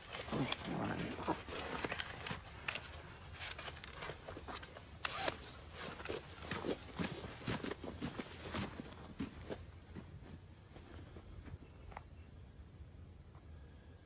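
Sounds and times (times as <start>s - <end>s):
rustling: 0.0s - 9.6s
crunching footsteps: 0.0s - 11.6s.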